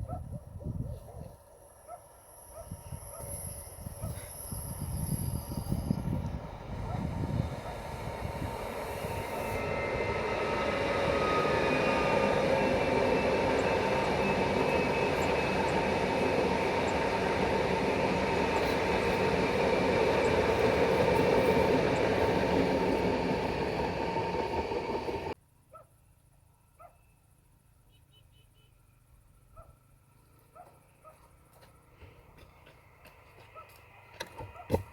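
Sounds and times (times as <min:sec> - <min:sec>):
train humming tone: 0:01.7 - 0:25.4
train wheels rumbling on rail: 0:04.1 - 0:25.4.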